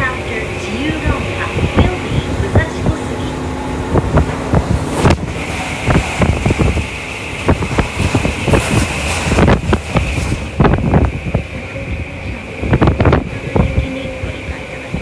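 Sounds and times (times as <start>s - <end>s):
electric train rumble and hiss: 0.0s - 15.0s
wheels clicking on track: 3.9s - 15.0s.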